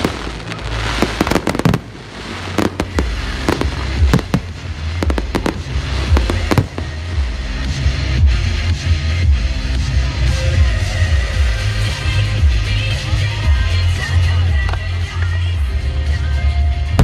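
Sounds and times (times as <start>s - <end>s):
fireworks bangs and cracks: 0.0s - 8.4s
bass-heavy music: 0.0s - 17.0s.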